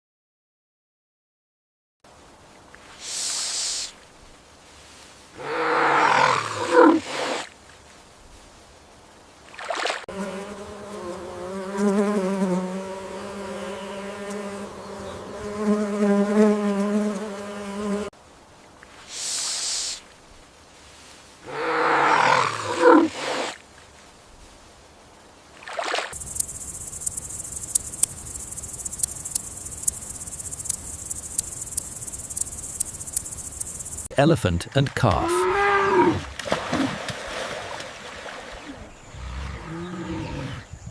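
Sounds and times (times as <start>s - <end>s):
short hiss: 2.8s - 4.0s, 19.0s - 20.1s
rough roar-like animal call: 5.4s - 7.4s, 21.4s - 23.5s, 35.2s - 37.0s, 38.6s - 40.7s
high-pitched trill with clicks: 26.2s - 34.1s
steady buzz: 26.2s - 34.1s.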